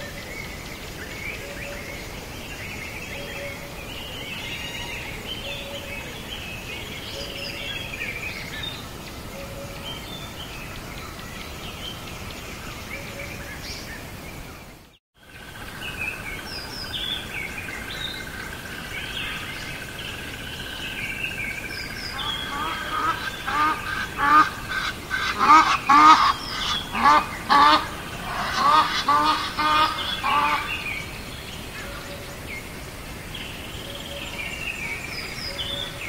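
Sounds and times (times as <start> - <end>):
outdoor noise bed: 0.0 - 36.0
birds chirping and calling: 15.4 - 36.0.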